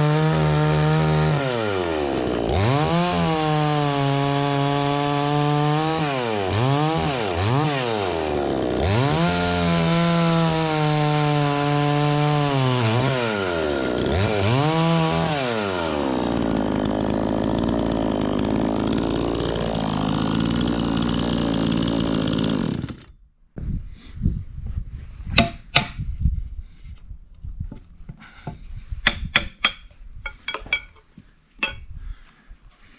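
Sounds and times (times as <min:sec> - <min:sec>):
chainsaw running: 0:00.0 - 0:23.2.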